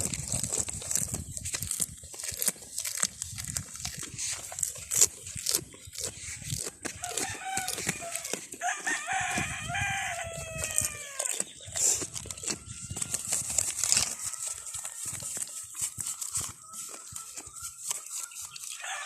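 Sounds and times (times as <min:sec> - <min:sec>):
goat chewing leaves: 0:00.0 - 0:19.0
rooster crowing: 0:07.0 - 0:11.4, 0:12.4 - 0:15.7, 0:18.8 - 0:19.0.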